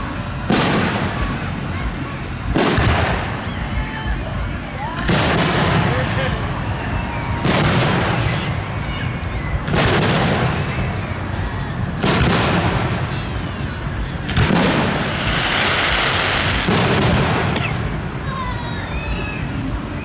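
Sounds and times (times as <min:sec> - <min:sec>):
fireworks booming: 0:00.0 - 0:18.6
continuous rumble: 0:00.0 - 0:20.0.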